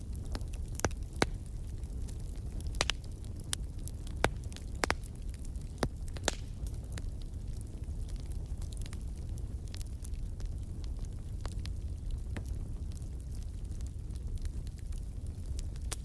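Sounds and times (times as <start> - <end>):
wood fire crackling: 0.0 - 16.0
sharp pops of fire: 0.1 - 10.0.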